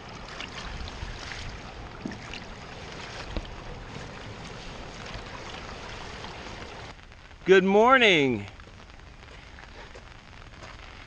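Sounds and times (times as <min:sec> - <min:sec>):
water rushing through pipe: 0:00.0 - 0:07.0
wind rumble on microphone: 0:00.0 - 0:07.5.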